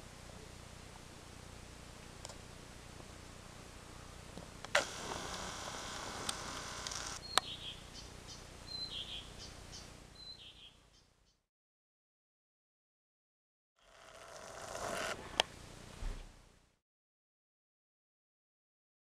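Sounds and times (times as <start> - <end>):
bird chirping: 7.2 - 11.4.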